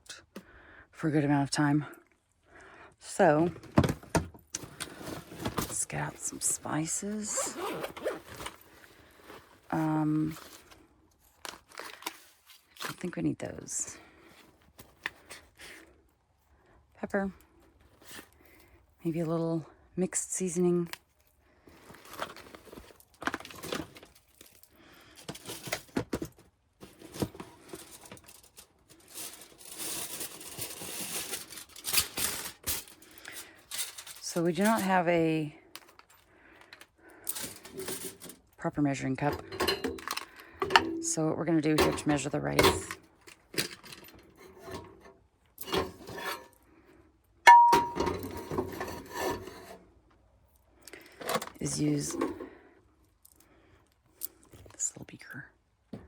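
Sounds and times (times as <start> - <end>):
packaging crinkling and rustling: 3.6 - 13.0, 21.1 - 35.0
sharp ringing clink: 47.5 - 48.2.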